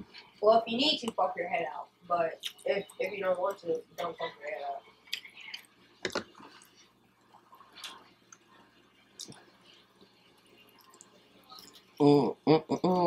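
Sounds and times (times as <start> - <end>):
chewing fried food: 2.3 - 3.6, 4.8 - 12.0.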